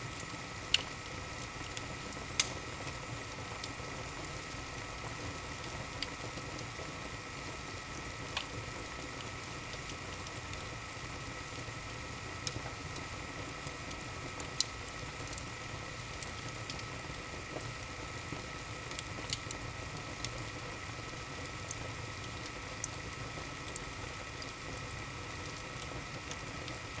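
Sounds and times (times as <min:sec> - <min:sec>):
wood fire crackling: 0:00.1 - 0:27.0.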